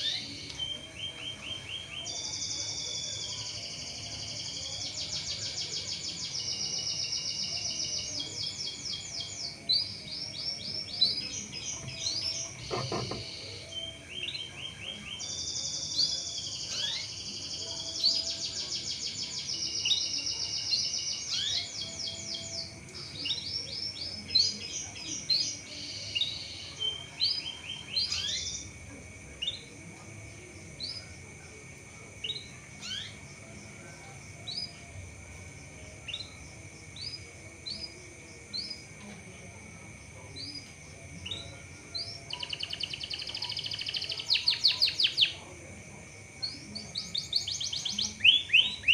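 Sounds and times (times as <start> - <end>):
canary trilling: 25.4 - 28.8.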